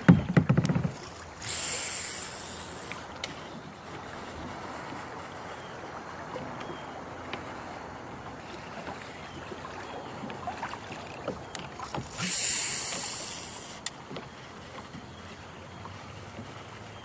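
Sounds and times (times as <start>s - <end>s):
small knocks on kayak: 0.0s - 1.1s
water around kayak: 0.0s - 17.0s
loud hiss: 1.4s - 3.1s, 12.1s - 13.8s.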